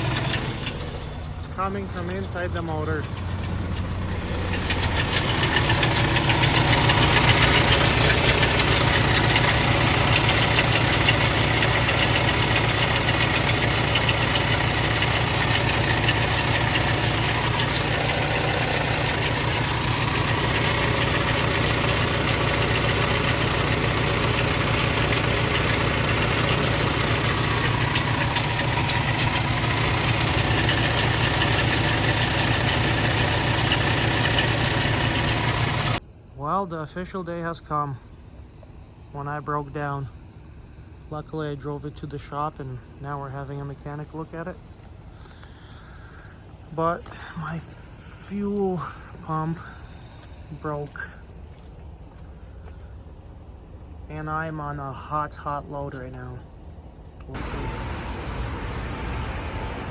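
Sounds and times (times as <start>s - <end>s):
diesel engine idling: 0.0s - 36.0s, 37.1s - 59.9s
rapid knocking inside engine: 0.0s - 36.0s.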